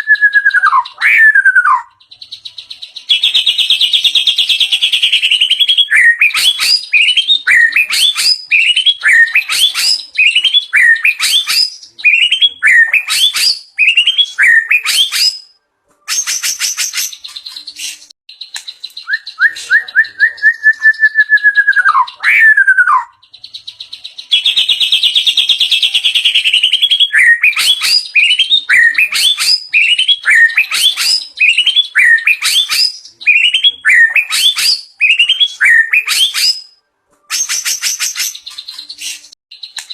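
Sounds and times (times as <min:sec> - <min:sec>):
bird singing loudly: 0:00.0 - 0:39.9.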